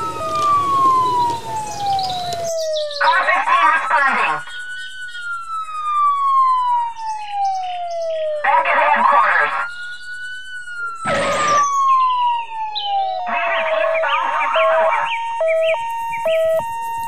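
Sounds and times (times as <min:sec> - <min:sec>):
chirpy sound effects: 0:00.0 - 0:03.0, 0:10.8 - 0:17.0
police siren wailing: 0:00.0 - 0:17.0
loud noise burst: 0:11.0 - 0:11.7.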